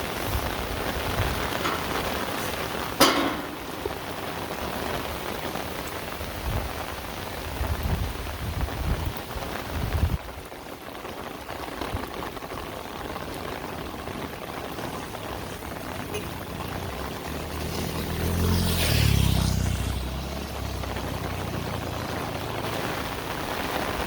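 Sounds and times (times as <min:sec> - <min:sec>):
low rumbling bumps: 0:00.0 - 0:04.2
heavy rain: 0:00.0 - 0:24.0.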